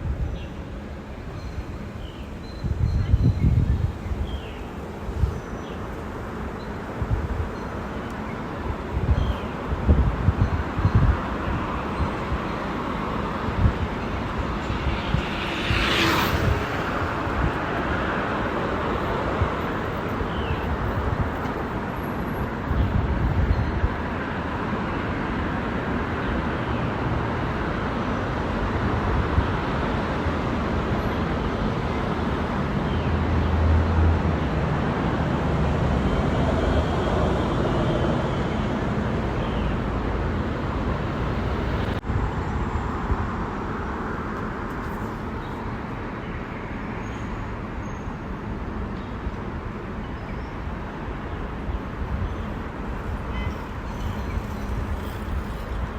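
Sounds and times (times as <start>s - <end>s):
road rumble and hiss: 0.0s - 55.9s
motor vehicles passing: 9.9s - 45.7s.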